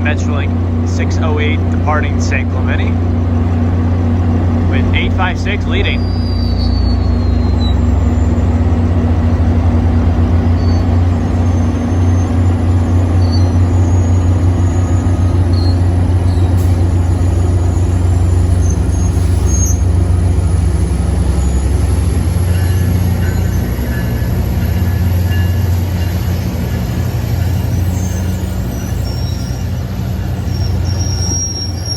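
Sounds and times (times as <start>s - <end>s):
diesel locomotive engine droning: 0.0s - 31.9s
faint high squeaks: 5.9s - 8.7s, 27.6s - 29.8s, 30.4s - 31.9s.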